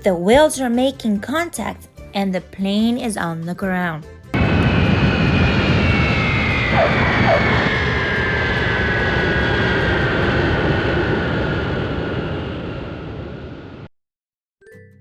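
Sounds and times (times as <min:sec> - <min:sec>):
broad rumble: 0:04.4 - 0:13.9
jet engine whine winding down: 0:04.4 - 0:13.9.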